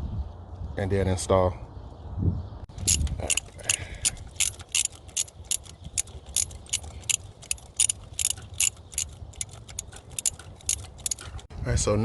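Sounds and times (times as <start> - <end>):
ratchet wrench clicking: 2.8 - 11.5.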